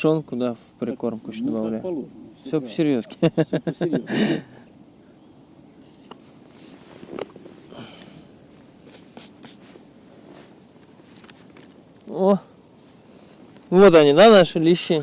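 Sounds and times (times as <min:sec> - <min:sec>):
low outdoor background: 0:00.0 - 0:15.0
light clicks and rustles: 0:05.8 - 0:12.2.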